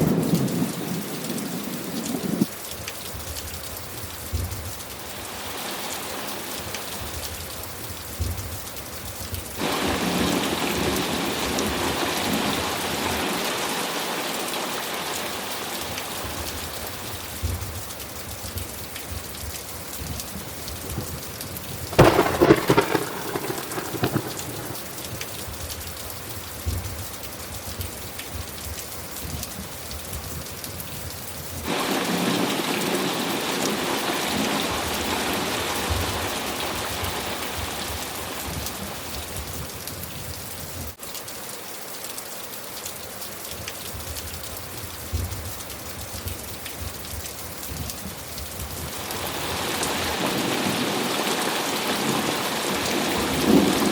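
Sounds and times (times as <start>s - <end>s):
steady rain: 0.0s - 53.9s
thunder: 21.8s - 25.6s.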